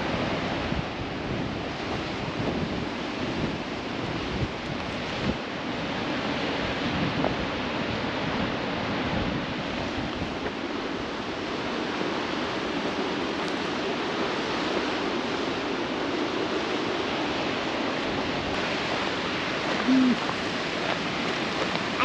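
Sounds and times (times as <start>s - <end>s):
waterfall rushing: 9.6s - 22.0s.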